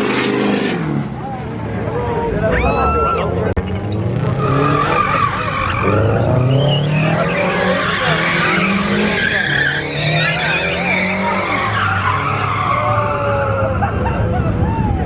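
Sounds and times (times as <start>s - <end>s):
car engine revving: 3.6s - 14.1s
tyre squeal: 4.4s - 12.8s.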